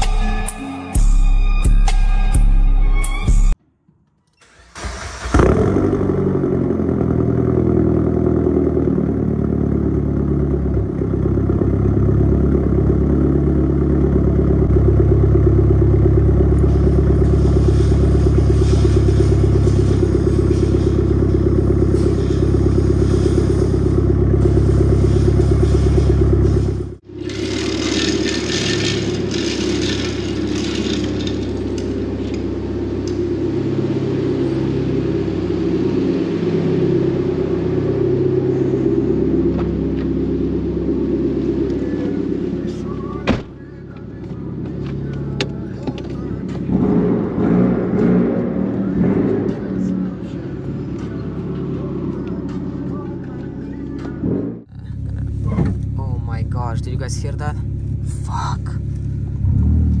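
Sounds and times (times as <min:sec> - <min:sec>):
car engine idling loudly: 0:04.8 - 1:00.0
rattling clatter: 0:25.6 - 0:32.6.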